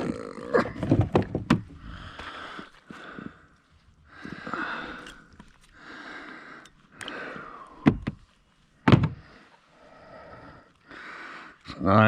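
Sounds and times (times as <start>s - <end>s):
person breathing heavily: 1.6s - 11.7s
sharp knocks: 8.8s - 9.2s.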